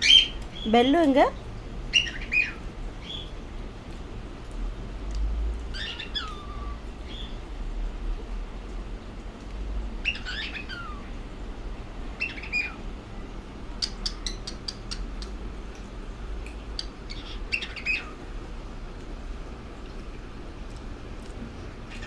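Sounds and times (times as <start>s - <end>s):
cockatiel chirping: 0.0s - 0.4s, 1.9s - 3.2s, 5.7s - 7.3s, 10.0s - 11.0s, 12.2s - 12.8s, 16.8s - 18.2s
steady low hum: 0.0s - 22.0s.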